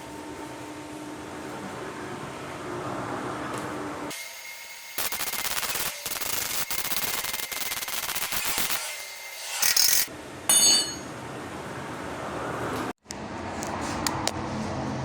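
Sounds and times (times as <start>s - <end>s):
crackling rasp of metalwork: 4.4s - 10.1s.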